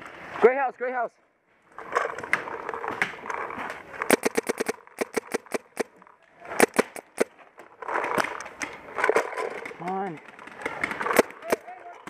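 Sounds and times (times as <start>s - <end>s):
paintball marker firing: 4.0s - 7.3s, 10.7s - 11.8s.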